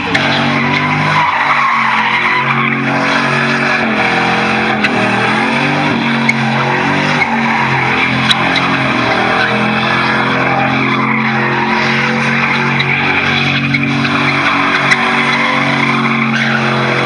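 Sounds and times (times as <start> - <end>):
tires screeching on pavement: 0.0 - 17.0
truck engine revving: 0.0 - 17.0.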